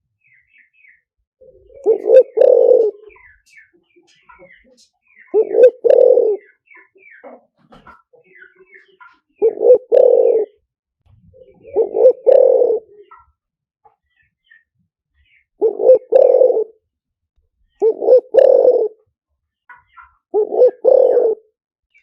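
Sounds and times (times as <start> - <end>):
dove cooing: 1.4 - 3.6, 5.2 - 7.3, 9.4 - 10.6, 11.3 - 13.2, 15.6 - 16.8, 17.8 - 19.0, 20.3 - 21.5.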